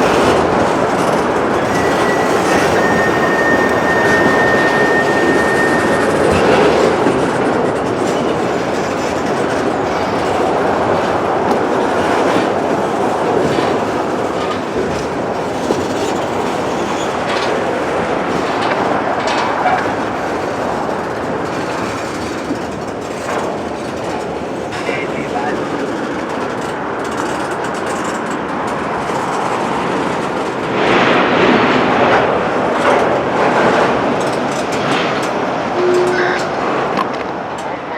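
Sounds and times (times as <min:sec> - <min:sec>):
high wheel squeal: 0:00.0 - 0:10.5, 0:12.0 - 0:24.1, 0:35.8 - 0:36.6
clicks over rail joints: 0:00.0 - 0:37.8
train wheels rumbling on rail: 0:00.0 - 0:37.9.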